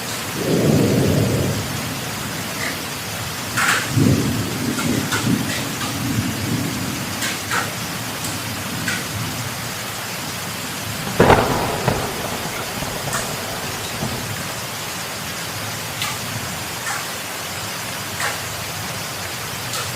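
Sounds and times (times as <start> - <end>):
heavy rain: 0.0 - 19.9
loud thunderclap: 10.8 - 15.3
thunder rumbling: 10.8 - 15.3.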